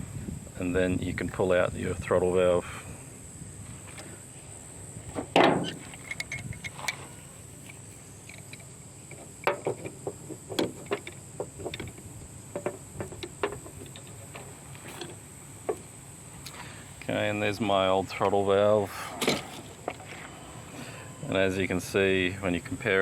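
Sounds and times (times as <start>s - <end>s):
pliers and metal fittings clicking: 5.8s - 8.7s.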